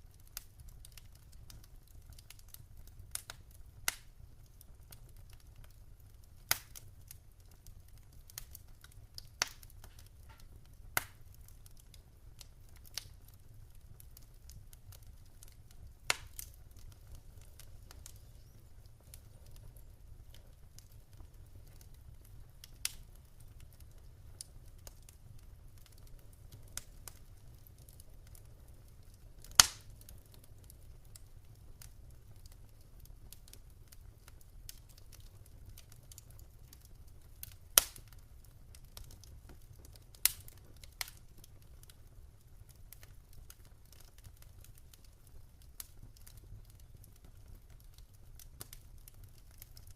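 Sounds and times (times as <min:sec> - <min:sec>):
wood fire crackling: 0:00.0 - 0:49.9
sharp fire pops: 0:06.5 - 0:07.2, 0:08.3 - 0:11.6, 0:14.1 - 0:20.9, 0:29.4 - 0:31.2, 0:37.4 - 0:38.2, 0:40.2 - 0:41.2.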